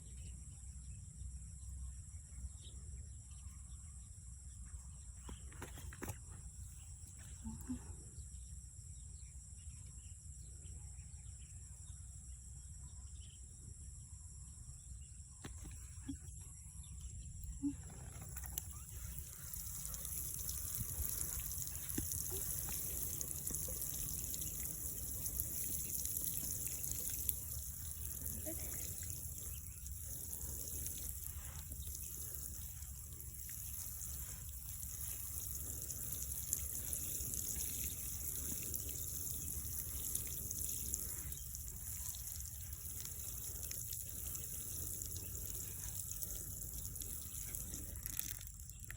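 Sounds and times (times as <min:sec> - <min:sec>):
high insect drone: 0:11.2 - 0:48.8
water trickling: 0:17.6 - 0:48.9.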